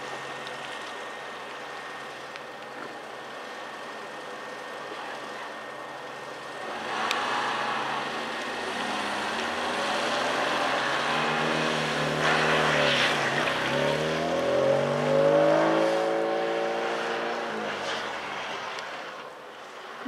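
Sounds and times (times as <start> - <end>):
car engine revving hard: 6.6 - 18.6.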